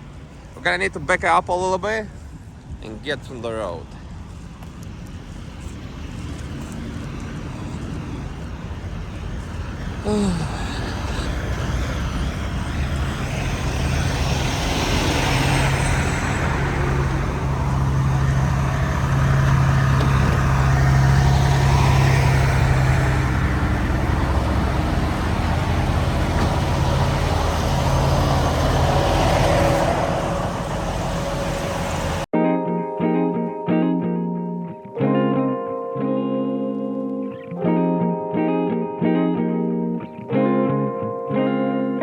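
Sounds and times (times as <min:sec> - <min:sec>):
road noise: 0:00.0 - 0:32.4, 0:33.4 - 0:42.0
diesel truck engine humming: 0:05.2 - 0:32.3.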